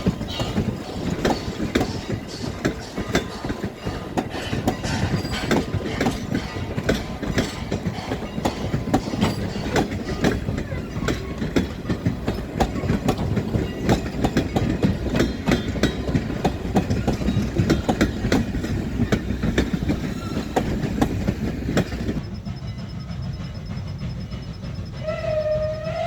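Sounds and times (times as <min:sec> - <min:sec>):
train rumble: 0:00.0 - 0:26.0
train wheels clacking on rails: 0:00.0 - 0:26.0.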